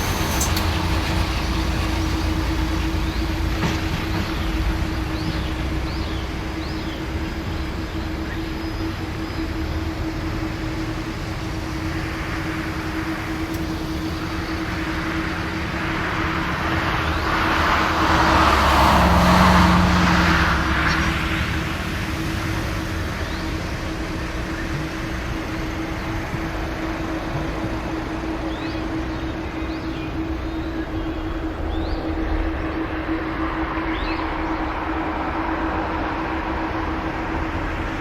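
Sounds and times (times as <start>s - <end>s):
jet engines rushing: 0.0s - 38.0s
low hum and rumble: 0.0s - 38.0s
bird chirps: 28.2s - 34.8s.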